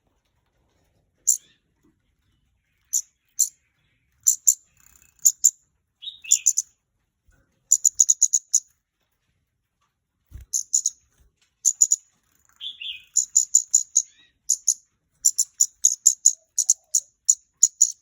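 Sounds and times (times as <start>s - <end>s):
bird high ticking notes: 2.9s - 3.5s, 4.3s - 4.6s, 5.2s - 6.6s, 7.7s - 8.6s, 10.5s - 11.0s, 11.7s - 12.0s, 12.6s - 18.0s.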